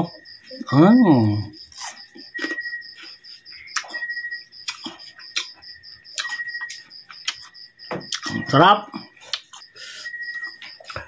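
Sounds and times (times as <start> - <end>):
wet chewing with lip smacks: 1.7 - 8.4
mouth clicks: 3.7 - 7.5.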